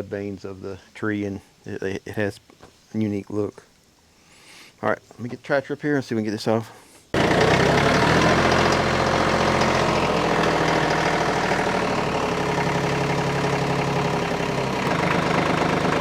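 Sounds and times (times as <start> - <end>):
tractor diesel engine running: 7.2 - 16.0.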